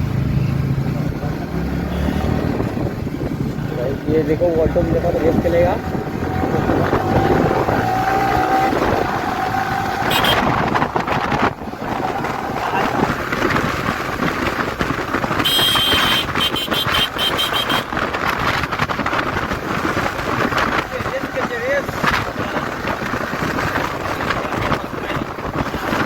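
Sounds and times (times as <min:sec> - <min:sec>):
road traffic engines: 0:00.0 - 0:26.0
high-pitched horn honking: 0:10.0 - 0:10.6, 0:15.4 - 0:18.0.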